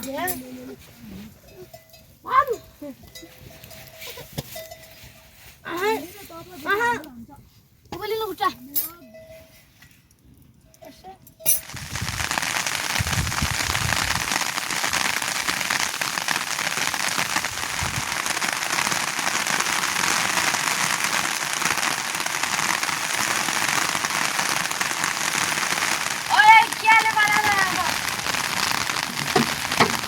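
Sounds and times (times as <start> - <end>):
steady rain falling: 11.6 - 30.0.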